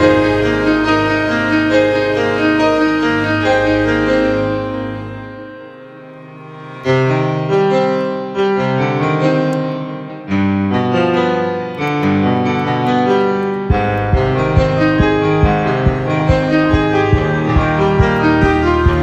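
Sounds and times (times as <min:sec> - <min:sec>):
piano chords: 0:00.0 - 0:19.0
steady beat: 0:13.7 - 0:19.0.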